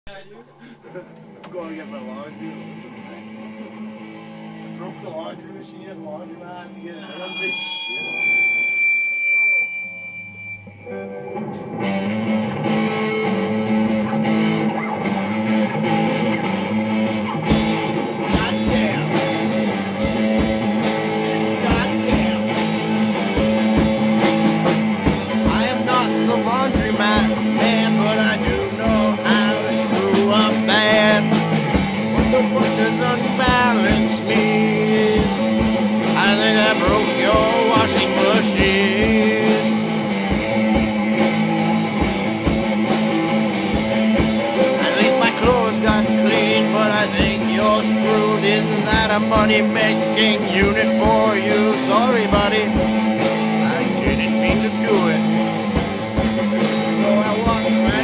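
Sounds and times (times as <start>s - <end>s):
instrumental rock band: 0.1s - 58.0s
wavering lead guitar line: 0.1s - 58.0s.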